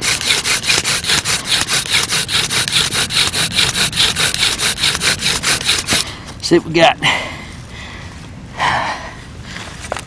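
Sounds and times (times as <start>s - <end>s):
wooden spindle grinding and squeaking: 0.0s - 6.1s.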